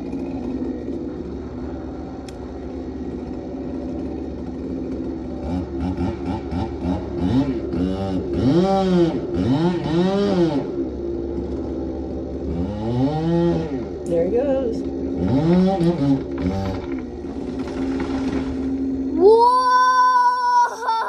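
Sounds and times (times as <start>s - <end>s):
chainsaw revving: 0.0s - 19.3s.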